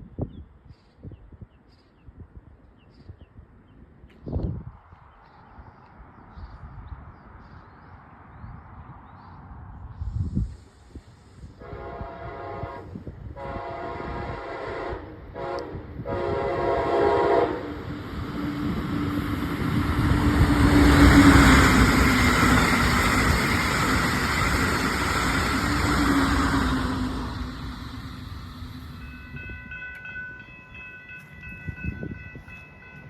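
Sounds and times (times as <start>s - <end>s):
train wheels rumbling on rail: 9.6s - 33.0s
train horn blasts: 11.6s - 17.9s.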